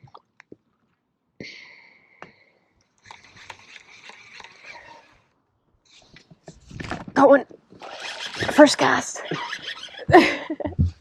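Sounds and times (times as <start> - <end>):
reel click: 3.0 - 5.1
fishing reel spool whirring: 3.0 - 5.3, 7.8 - 10.1.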